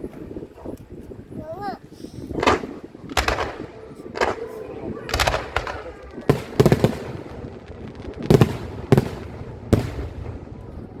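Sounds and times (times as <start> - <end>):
firework shells bursting: 2.4 - 10.9.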